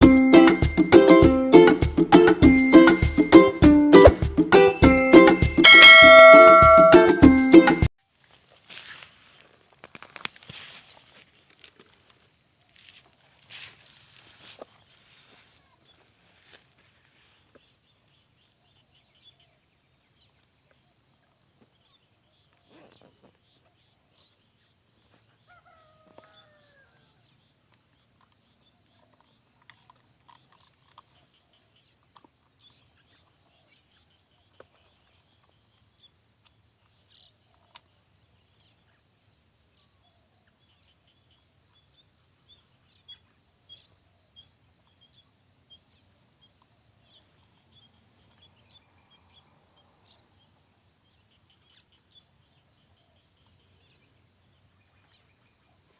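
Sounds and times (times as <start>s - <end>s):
distant rooster crowing: 25.4s - 27.2s.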